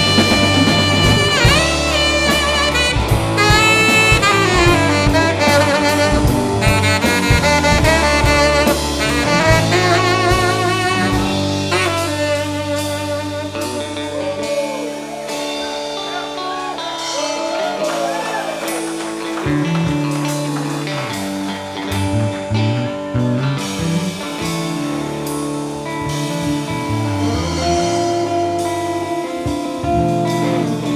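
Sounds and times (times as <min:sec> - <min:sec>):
rock band playing live: 0:00.0 - 0:30.9
saxophone solo: 0:00.0 - 0:30.9.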